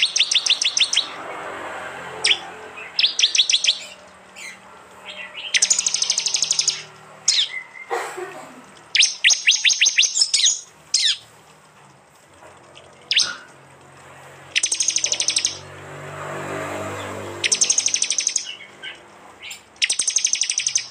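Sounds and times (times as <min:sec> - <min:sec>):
bird trilling: 0:00.0 - 0:01.2, 0:02.2 - 0:08.0, 0:08.8 - 0:11.3, 0:12.8 - 0:13.5, 0:14.5 - 0:15.7, 0:17.3 - 0:20.9
sharp sweeping bird notes: 0:00.0 - 0:01.3, 0:02.1 - 0:07.9, 0:08.9 - 0:11.3, 0:13.1 - 0:13.4, 0:14.5 - 0:15.7, 0:16.8 - 0:20.9.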